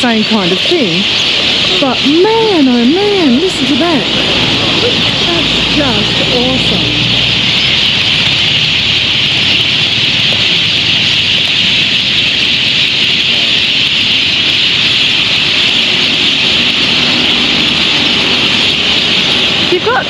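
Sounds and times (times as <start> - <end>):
flock of birds chirping: 0.0 - 20.0
low rumble: 0.7 - 20.0.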